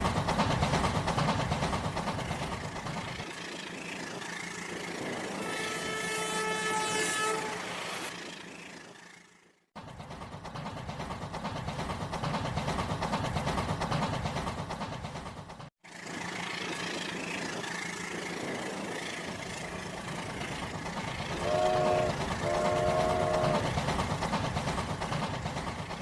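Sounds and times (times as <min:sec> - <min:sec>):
train running: 0:00.0 - 0:26.0
train horn toots: 0:05.2 - 0:08.1, 0:21.2 - 0:23.8.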